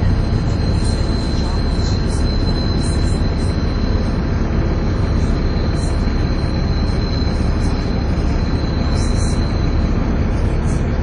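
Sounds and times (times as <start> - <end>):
bus engine rumbling: 0.0 - 11.0
high-pitched whine: 0.0 - 11.0.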